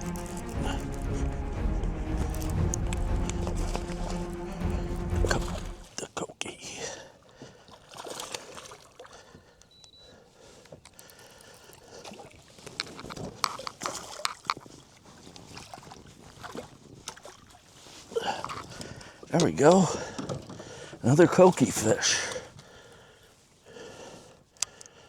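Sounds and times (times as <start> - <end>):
water splashing: 0.0 - 6.0.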